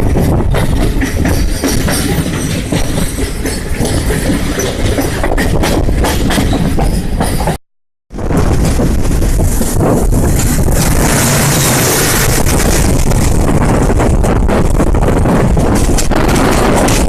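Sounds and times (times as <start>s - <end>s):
wind rushing on microphone: 0.0s - 3.0s, 8.1s - 17.0s
moving train rumbling: 0.0s - 17.0s.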